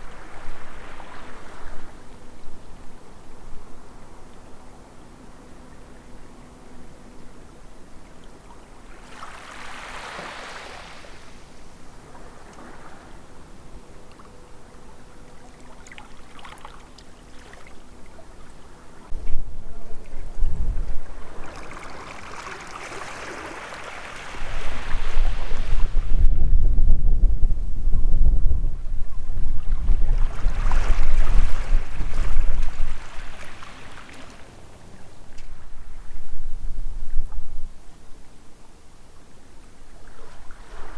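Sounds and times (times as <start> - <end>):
water lapping and trickling: 0.0 - 26.1, 29.5 - 36.2
faint steady hum: 0.0 - 40.9
wind buffeting microphone: 17.8 - 40.9
strong low rumble: 19.1 - 21.5, 25.3 - 32.9
rush of water: 19.3 - 26.0, 30.2 - 35.4.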